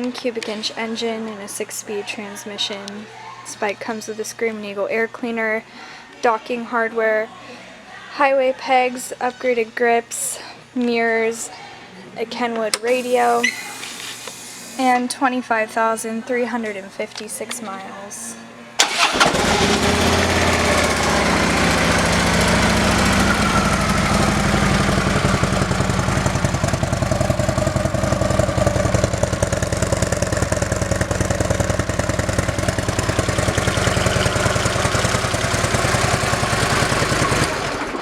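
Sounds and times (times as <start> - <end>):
motorcycle engine idling: 18.9 - 38.0.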